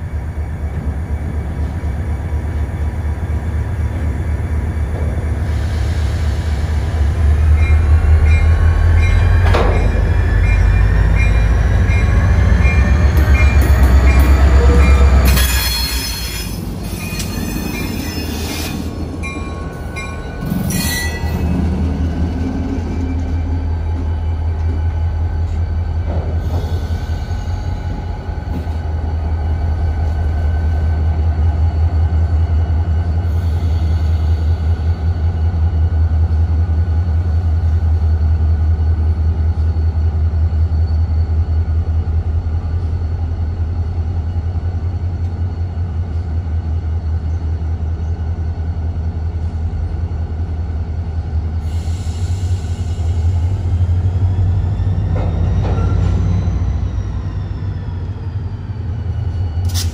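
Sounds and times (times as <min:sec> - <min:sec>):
steel wheels squealing: 0:07.6 - 0:21.8.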